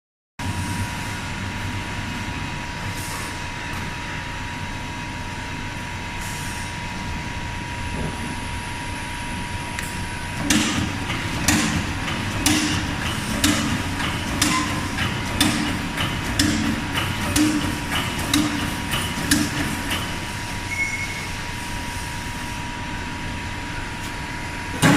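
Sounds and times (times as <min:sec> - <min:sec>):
hydraulic machine humming: 0:05.8 - 0:24.9
punching metal bangs: 0:10.4 - 0:20.2.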